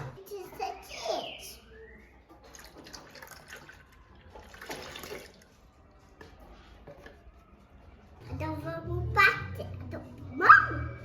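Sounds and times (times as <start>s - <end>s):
liquid pouring into container: 2.4s - 5.5s.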